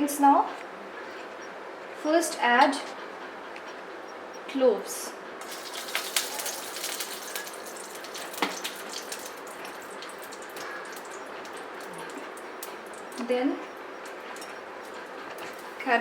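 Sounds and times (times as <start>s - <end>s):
spices sizzling in hot oil: 5.4s - 15.9s.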